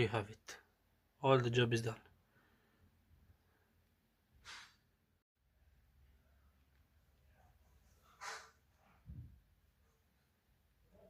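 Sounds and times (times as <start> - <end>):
faint low thump: 9.0 - 9.5.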